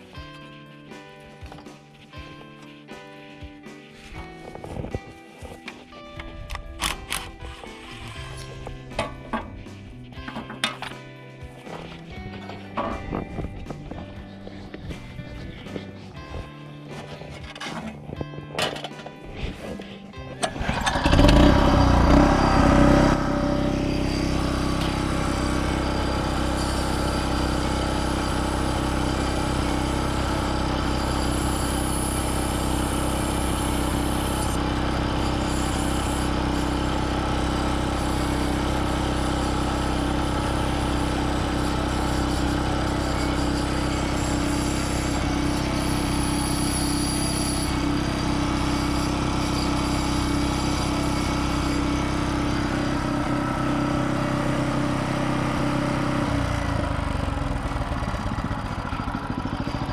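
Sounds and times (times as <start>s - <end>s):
small engine running: 4.0s - 17.9s, 18.6s - 59.9s.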